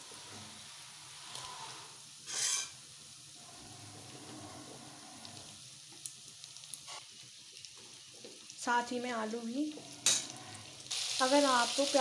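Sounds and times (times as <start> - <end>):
onions sizzling in oil: 0.0 - 12.0
burst of sizzling: 8.6 - 12.0.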